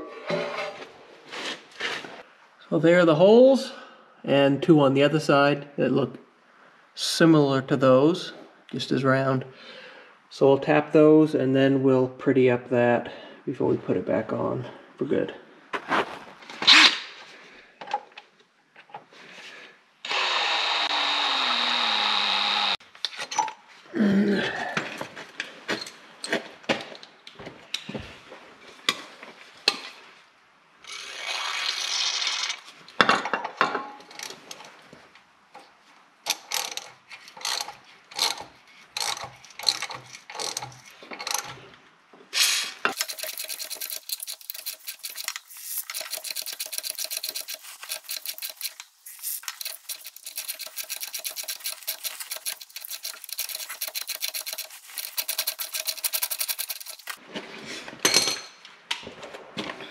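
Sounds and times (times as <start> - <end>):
power drill running: 20.1 - 22.8
tools clicking and scraping on metal: 36.3 - 41.6, 42.9 - 57.2.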